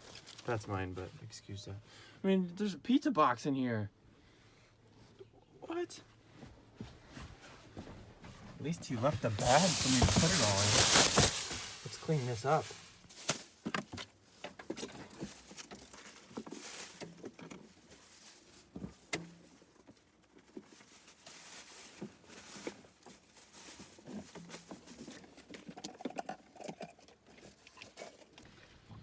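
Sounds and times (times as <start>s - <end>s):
trash rustling into a bag: 7.1s - 19.8s, 20.5s - 25.4s.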